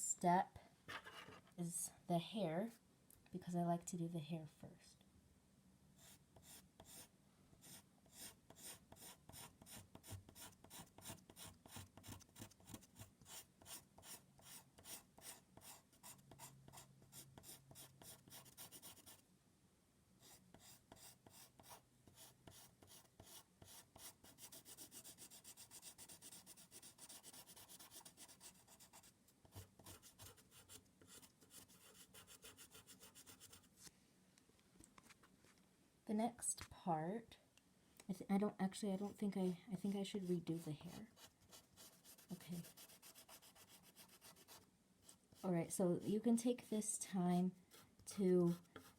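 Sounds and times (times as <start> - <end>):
scratching drawing strokes: 6.0 - 19.2, 20.2 - 33.9, 39.1 - 45.5, 47.7 - 48.9.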